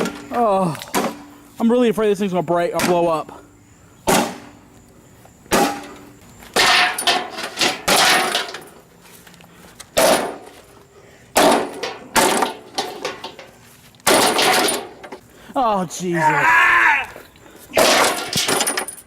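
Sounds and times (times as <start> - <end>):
lawnmower being smashed: 5.5 - 6.0, 6.6 - 8.8, 10.0 - 10.7, 11.4 - 15.2, 17.7 - 19.0.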